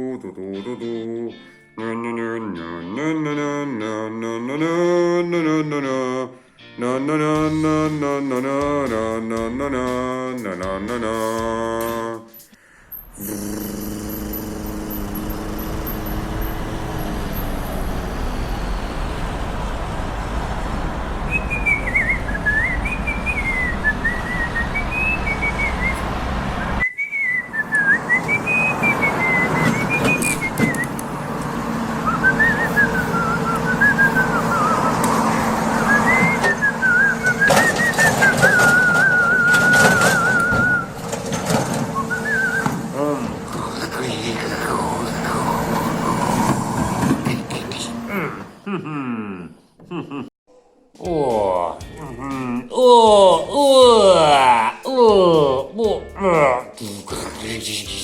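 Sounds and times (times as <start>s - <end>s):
person whistling a tune: 21.3s - 31.0s, 32.0s - 41.0s, 42.0s - 43.2s.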